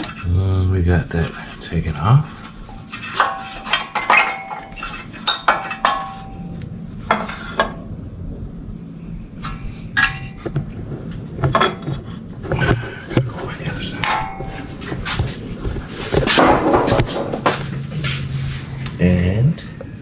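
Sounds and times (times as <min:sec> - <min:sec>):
metal tools clinking: 0:02.4 - 0:07.8, 0:10.0 - 0:10.4, 0:13.9 - 0:14.9.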